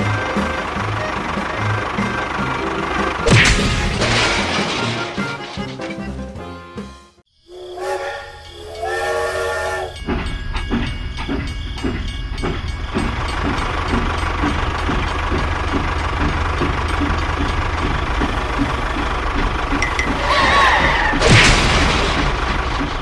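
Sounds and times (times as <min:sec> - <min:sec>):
vehicle engine chugging: 0:00.0 - 0:06.4, 0:07.8 - 0:23.0
cartoon whistle notes: 0:07.5 - 0:10.0.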